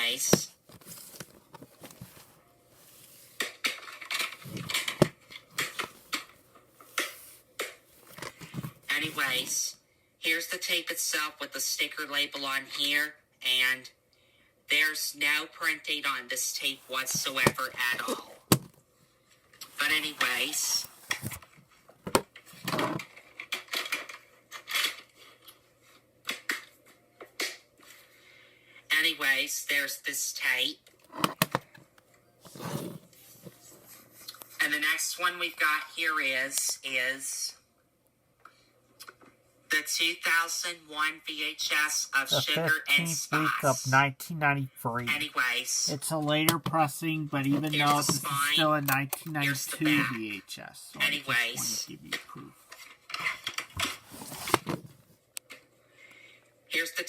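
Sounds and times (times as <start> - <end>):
plastic cassette case rustling: 0.3 - 9.4, 52.7 - 55.1.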